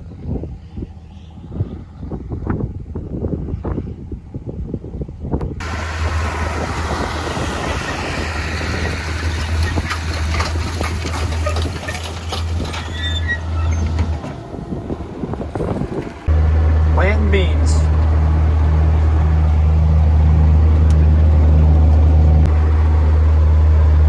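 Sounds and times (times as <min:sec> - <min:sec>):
tractor engine running: 0:05.6 - 0:24.0
rattles and clicks: 0:08.1 - 0:16.4.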